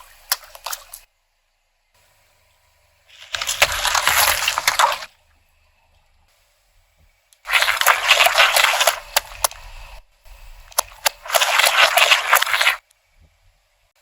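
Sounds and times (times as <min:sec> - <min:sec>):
objects crackling under car tyre: 0:03.1 - 0:05.1, 0:07.4 - 0:09.8, 0:10.6 - 0:12.8.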